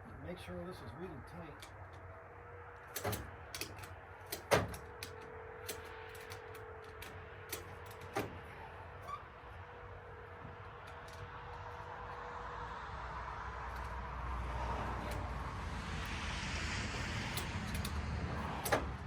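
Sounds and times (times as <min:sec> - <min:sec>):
metal hardware clicks and knocks: 0:02.8 - 0:09.2, 0:17.3 - 0:19.0.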